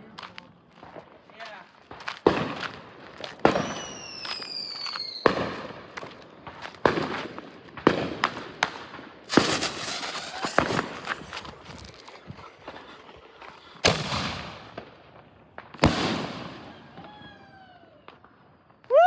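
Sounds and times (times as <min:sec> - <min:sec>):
firework bangs: 0:06.8 - 0:17.0
falling firework whistle: 0:09.3 - 0:11.7, 0:15.8 - 0:18.2
firework crackling burst: 0:09.3 - 0:15.1.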